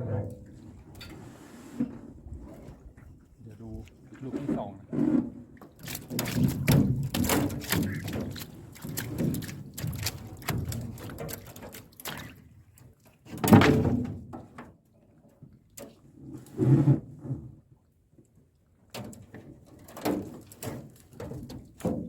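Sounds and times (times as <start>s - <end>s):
water sloshing: 1.8s - 13.4s
knocks and thunks against boat: 4.4s - 12.3s, 13.3s - 14.7s, 19.0s - 22.0s.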